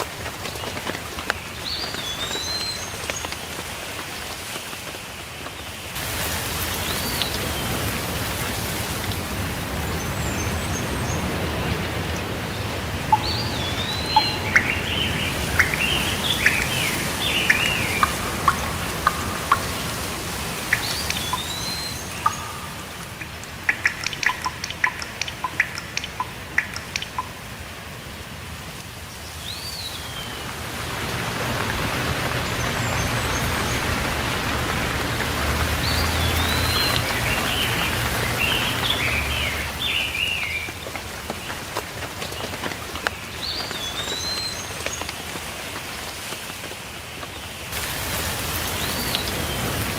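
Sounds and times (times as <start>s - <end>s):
birds chirping: 0.0s - 3.6s, 9.6s - 28.2s, 29.2s - 45.1s
steady rainfall: 0.0s - 49.9s
birds whistling: 13.1s - 27.3s, 35.8s - 40.7s.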